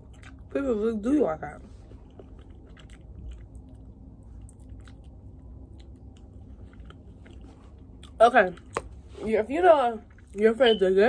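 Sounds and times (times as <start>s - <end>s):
person chewing food: 0.0s - 0.6s, 1.6s - 9.2s, 10.0s - 10.4s.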